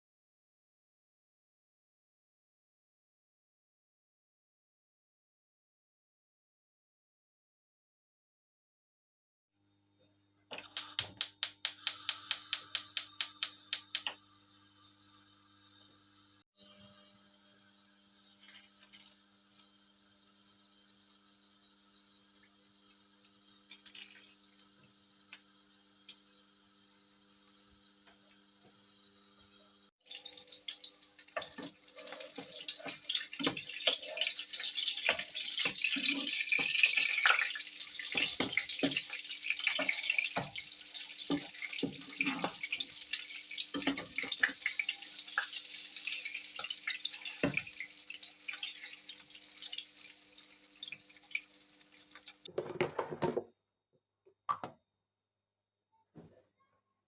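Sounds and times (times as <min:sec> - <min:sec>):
tap water running into sink: 0:10.6 - 0:14.1, 0:30.1 - 0:52.5.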